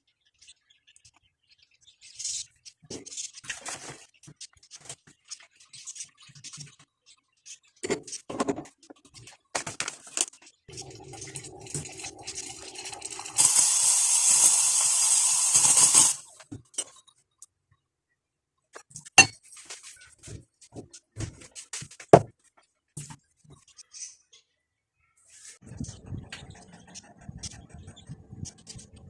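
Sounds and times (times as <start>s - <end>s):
steam wand hissing: 13.2s - 16.3s
cups and utensils clinking: 19.2s - 19.4s.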